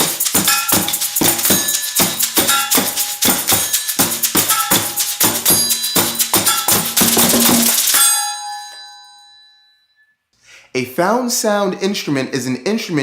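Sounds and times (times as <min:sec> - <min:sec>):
percussion music with shakers: 0:00.0 - 0:08.4
pitched ringing tones: 0:00.0 - 0:10.2.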